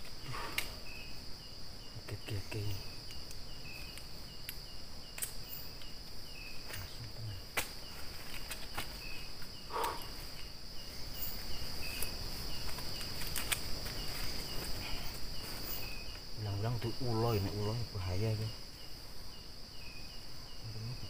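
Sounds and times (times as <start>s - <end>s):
crickets chirping: 0.0s - 21.0s
insects trilling: 0.0s - 21.0s
faint clicks: 3.1s - 6.0s.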